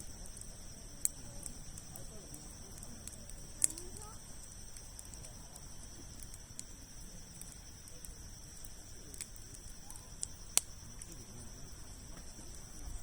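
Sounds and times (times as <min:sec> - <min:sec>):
campfire crackling pops: 0:00.0 - 0:13.0
high insect trill: 0:00.0 - 0:13.0.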